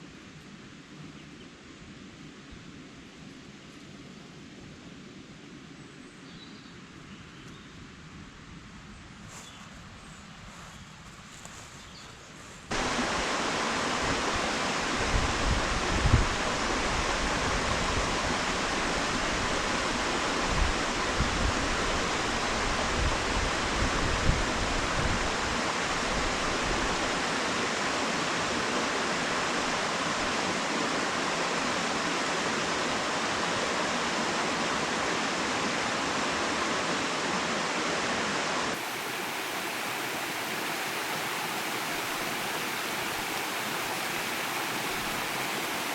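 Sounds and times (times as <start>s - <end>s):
waterfall rushing: 12.7s - 45.9s.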